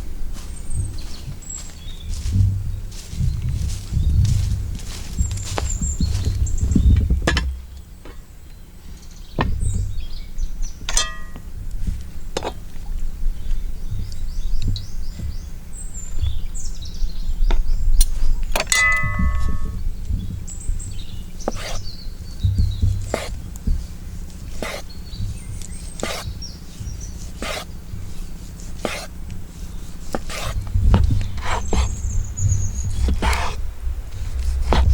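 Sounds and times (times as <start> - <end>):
birds chirping: 0.0 - 34.9
wind rumble on microphone: 0.0 - 34.9
sharp metallic clinks: 10.9 - 11.5, 18.6 - 19.8.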